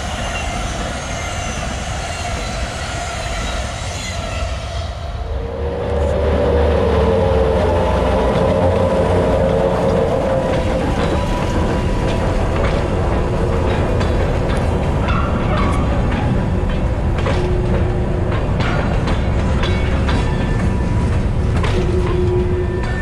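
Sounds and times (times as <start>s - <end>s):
diesel locomotive engine rumbling: 0.0s - 23.0s
train wheels clicking over rail joints: 5.8s - 23.0s.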